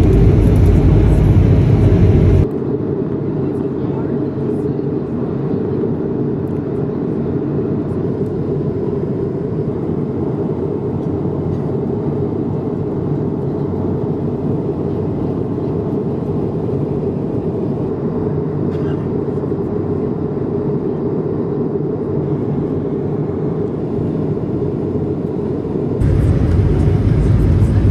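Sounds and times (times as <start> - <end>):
rushing air outside: 0.0 - 2.5, 21.2 - 27.9
airplane cabin engine drone: 0.0 - 27.9.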